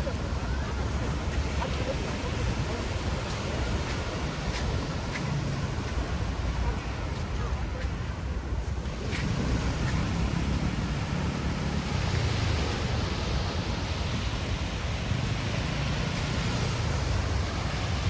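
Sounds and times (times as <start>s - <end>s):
surf washing onto beach: 0.0s - 18.0s
wind on microphone: 0.0s - 18.0s.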